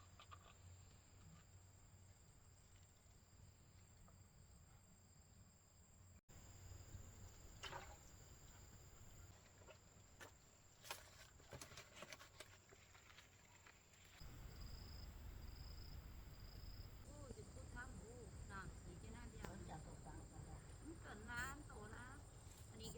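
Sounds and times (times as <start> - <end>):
faint high whine: 14.2 - 17.7.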